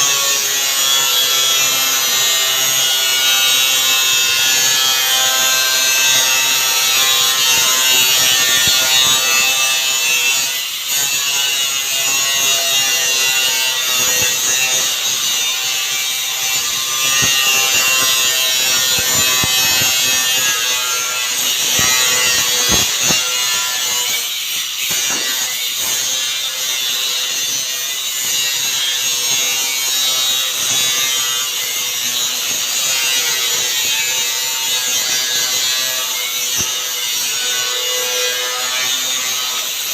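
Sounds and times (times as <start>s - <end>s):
power cutting tool whining: 0.4s - 26.6s.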